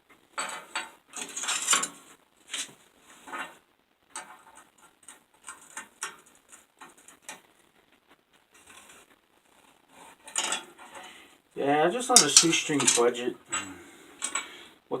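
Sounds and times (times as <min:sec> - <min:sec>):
small steel pieces clicking: 0:00.4 - 0:02.7, 0:10.3 - 0:10.7, 0:12.1 - 0:14.5
metallic clink: 0:12.1 - 0:14.4.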